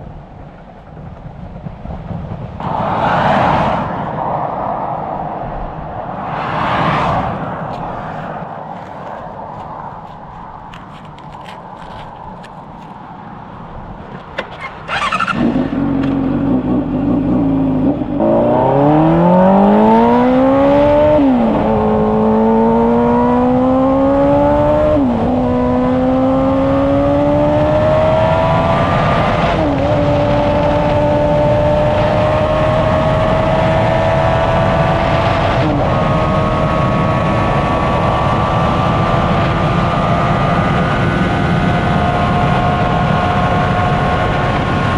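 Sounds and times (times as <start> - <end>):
wind rush: 0.0 - 44.9
motorcycle engine accelerating: 14.6 - 44.9.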